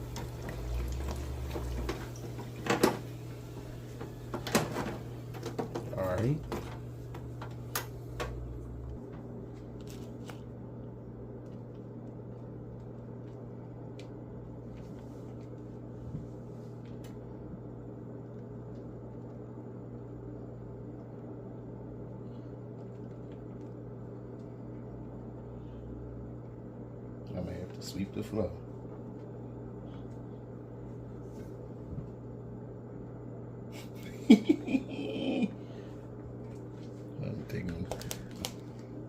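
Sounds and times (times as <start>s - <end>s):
dough frying in hot oil: 0.0s - 4.4s
constant low hum: 0.0s - 39.0s.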